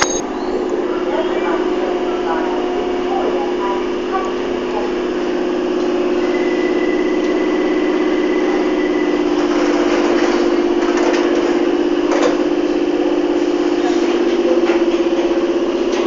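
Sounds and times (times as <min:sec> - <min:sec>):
thin high tone: 0:00.0 - 0:04.0
train pulsing hum: 0:00.0 - 0:16.0.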